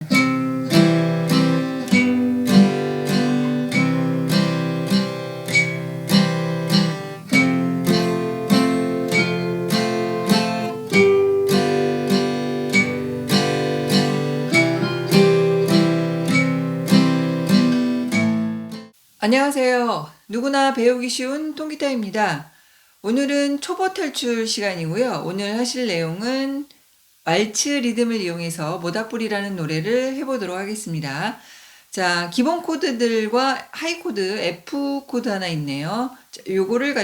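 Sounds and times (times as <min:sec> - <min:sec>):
acoustic guitar strumming: 0:00.0 - 0:18.9.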